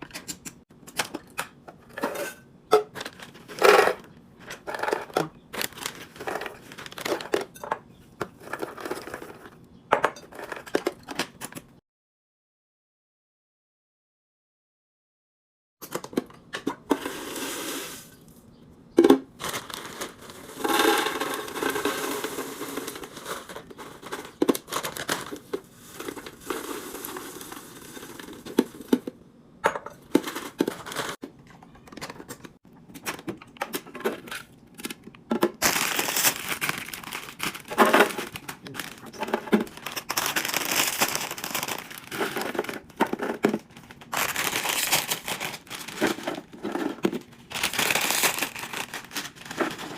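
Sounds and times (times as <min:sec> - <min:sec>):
plastic packaging crinkling: 0:04.8 - 0:07.5, 0:19.3 - 0:28.9, 0:34.8 - 0:49.9
items being set down: 0:37.4 - 0:40.2.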